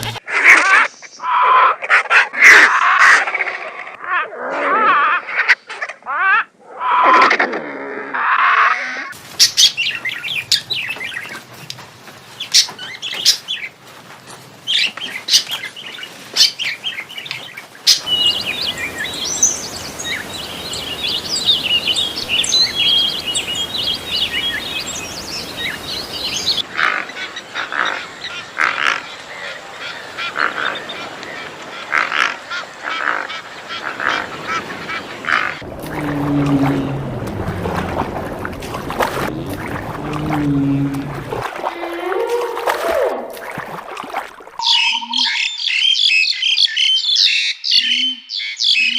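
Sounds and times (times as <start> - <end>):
dense high bird chirping: 16.5 - 26.6, 44.6 - 48.9.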